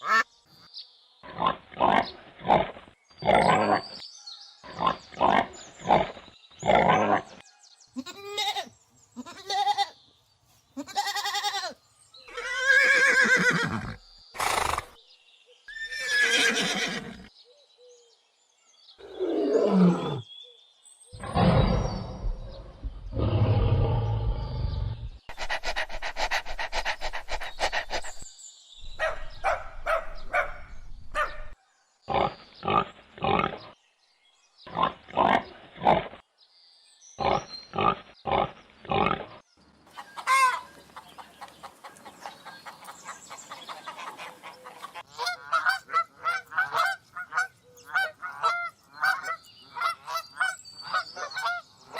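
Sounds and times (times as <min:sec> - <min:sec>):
low rough roar-like call: 0:23.0 - 0:25.1.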